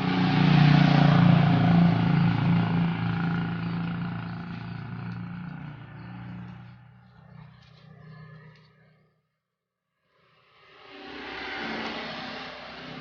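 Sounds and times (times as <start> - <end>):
vehicle engine passing by: 0.0 - 8.9.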